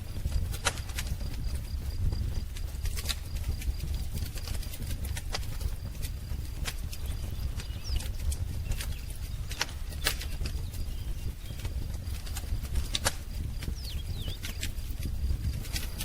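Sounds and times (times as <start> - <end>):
wood fire crackling: 0.0 - 16.0
faint bird chirps: 6.7 - 12.6, 13.4 - 15.0.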